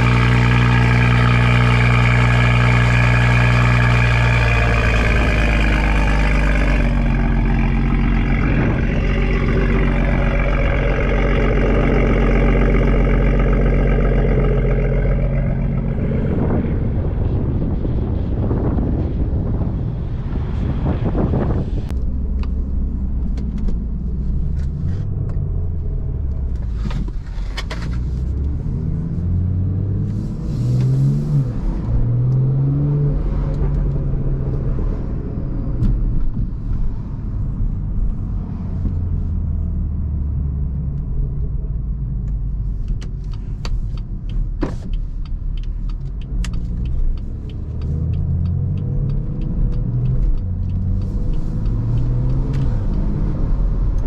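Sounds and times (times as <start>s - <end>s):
sharp exhaust pops: 0.0s - 16.9s
car engine accelerating through gears: 0.0s - 54.0s.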